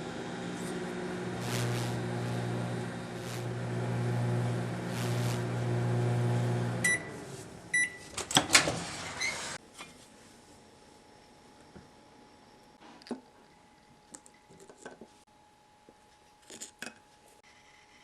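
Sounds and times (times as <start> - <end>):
microwave oven humming: 0.0 - 9.6.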